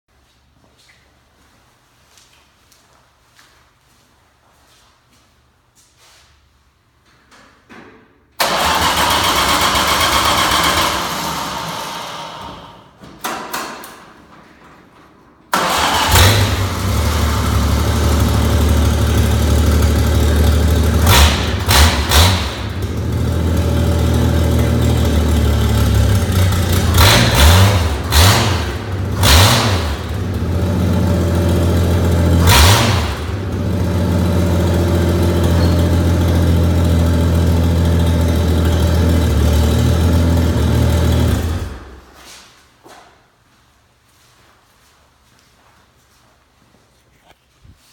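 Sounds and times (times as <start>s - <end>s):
engine cranking: 8.4s - 12.4s, 15.5s - 34.2s
engine idling: 8.4s - 12.4s, 15.6s - 41.9s
engine revving: 8.4s - 12.5s, 15.6s - 42.0s.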